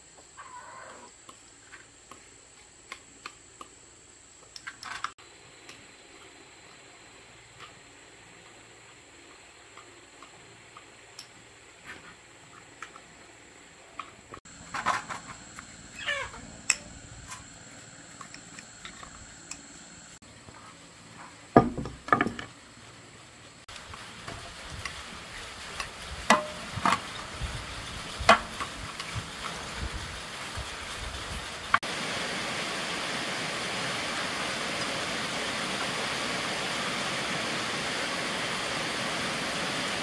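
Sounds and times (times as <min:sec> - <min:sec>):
tools knocking and clattering: 0:21.6 - 0:22.5.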